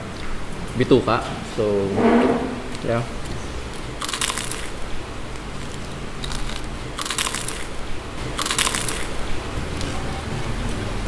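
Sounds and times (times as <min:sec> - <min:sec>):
crunching crispy food: 0:03.7 - 0:09.9.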